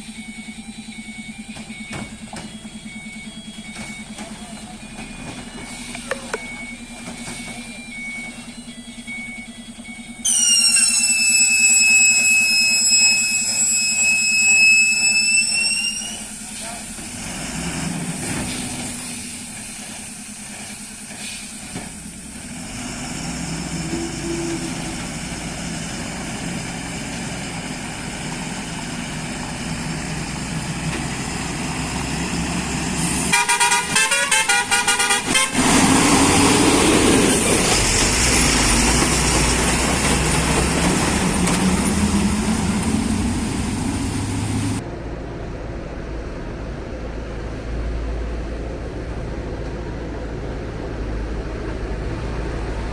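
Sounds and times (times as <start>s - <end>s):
heavy lorry engines running: 0.0s - 52.9s
engine revving: 16.8s - 19.4s, 22.3s - 52.9s
lorry horn: 33.2s - 36.0s.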